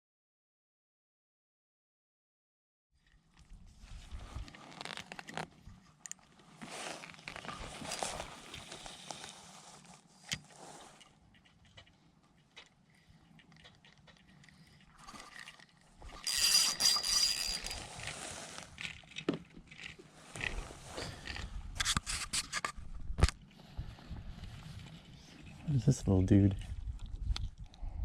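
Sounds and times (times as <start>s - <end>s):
scraping rustle: 3.7s - 12.0s, 14.3s - 22.8s
fishing gear scraping and clicking: 4.4s - 23.6s.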